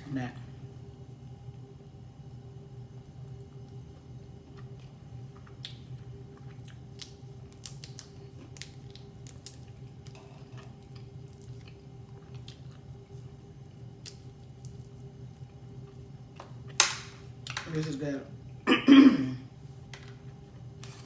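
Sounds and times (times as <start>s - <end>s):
crunchy chewing: 3.5s - 16.0s.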